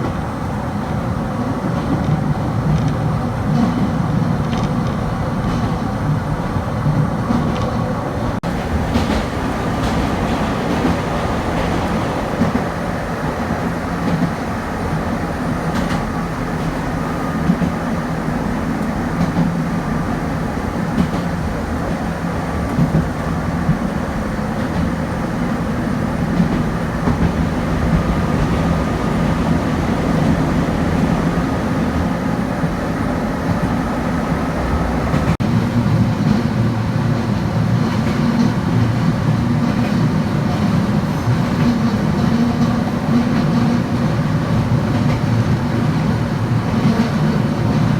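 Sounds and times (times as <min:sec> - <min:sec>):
train rumbling along track: 0:00.0 - 0:47.9
wheels clicking over rail joints: 0:01.7 - 0:20.1.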